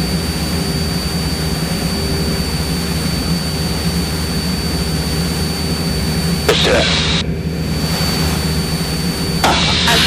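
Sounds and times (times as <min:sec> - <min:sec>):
propeller plane engine drone: 0:00.0 - 0:10.0
thin high whine: 0:06.5 - 0:10.0.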